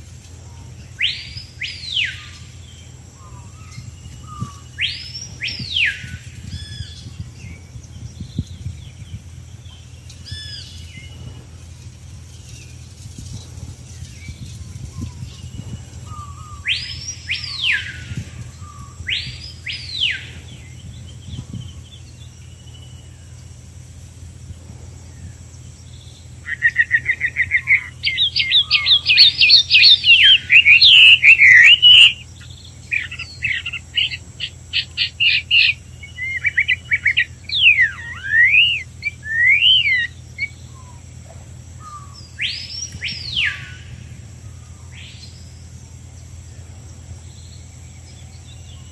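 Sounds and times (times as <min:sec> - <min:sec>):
songbird trilling song: 0:00.0 - 0:48.9
bird whistles: 0:01.0 - 0:02.5, 0:03.2 - 0:07.6, 0:14.2 - 0:20.4, 0:26.4 - 0:32.3, 0:32.9 - 0:41.0, 0:41.8 - 0:44.0.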